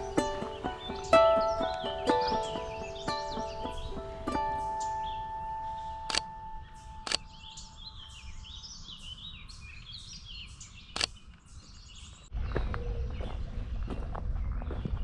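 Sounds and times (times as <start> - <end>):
low rumble of wind: 0.0 - 15.0
small birds chirping: 0.0 - 15.0
sharp clicks: 6.0 - 6.3, 7.0 - 7.3.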